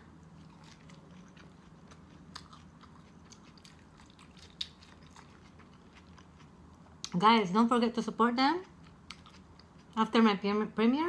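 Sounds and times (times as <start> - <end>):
person chewing crunchy food: 0.0 - 7.2, 8.6 - 10.0.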